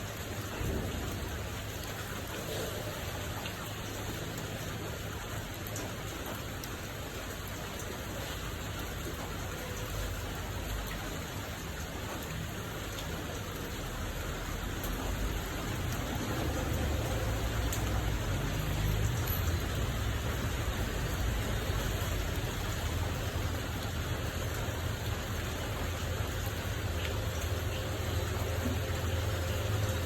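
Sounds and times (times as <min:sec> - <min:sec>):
rain hissing: 0:00.0 - 0:30.0
raindrop ticks: 0:00.0 - 0:30.0.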